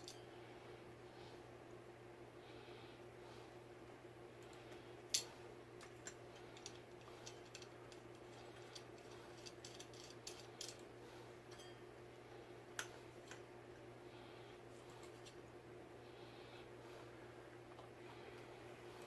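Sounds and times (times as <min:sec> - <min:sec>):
faint steady hum: 0:00.0 - 0:19.0
light clicks of small parts: 0:04.4 - 0:10.9.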